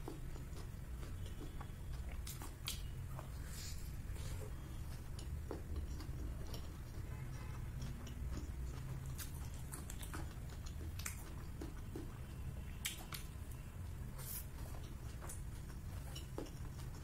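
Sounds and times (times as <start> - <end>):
person chewing and lip smacking: 0.0 - 17.0
steady low hum: 0.0 - 17.0.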